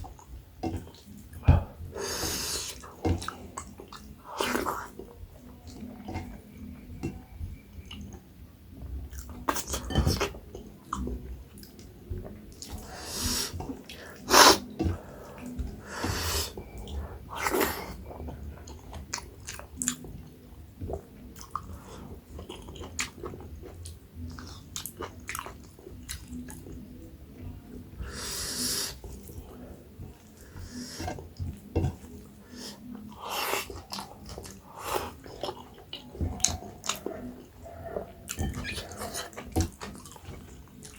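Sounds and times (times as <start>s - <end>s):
person chewing: 12.6s - 20.1s, 20.8s - 26.8s, 28.0s - 40.9s.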